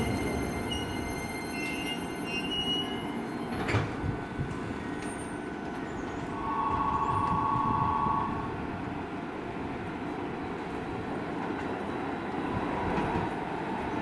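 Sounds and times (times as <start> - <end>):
train low rumble: 0.0 - 14.0
two-note electronic tone: 6.4 - 8.5.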